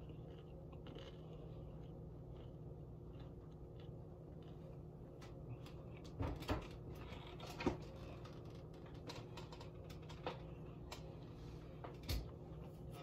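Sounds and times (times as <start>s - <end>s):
person chewing: 0.0s - 6.2s
low room hum: 0.0s - 13.0s.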